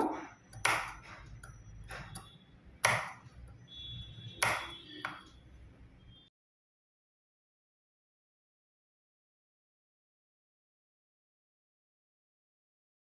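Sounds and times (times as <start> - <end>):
scissors snipping fabric: 0.0 - 3.4, 4.4 - 5.3.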